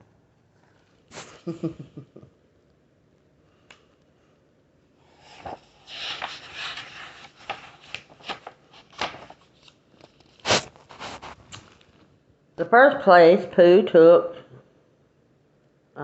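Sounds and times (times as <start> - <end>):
paper rustling and crackling: 5.2 - 12.1.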